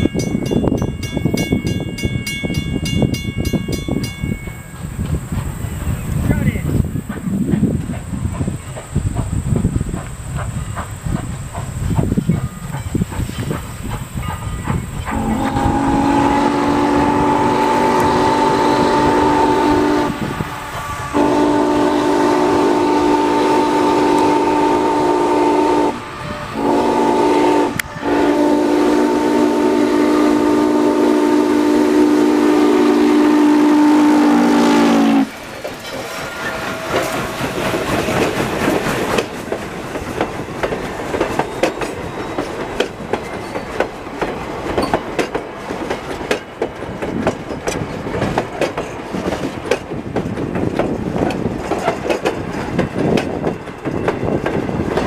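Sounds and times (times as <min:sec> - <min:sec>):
rumble and clatter of train: 0:00.0 - 0:29.3, 0:34.2 - 0:55.0
steam locomotive chime whistle: 0:14.2 - 0:38.2.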